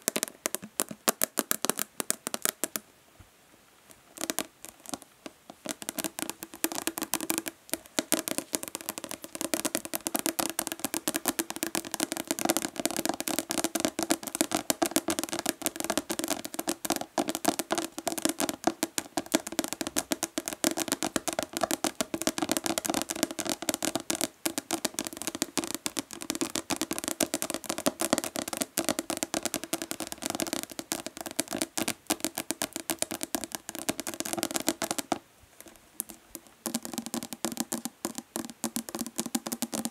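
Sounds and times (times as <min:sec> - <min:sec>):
fingernails tapping plastic bottle: 0:00.0 - 0:02.8, 0:04.2 - 0:35.2, 0:36.0 - 0:39.9.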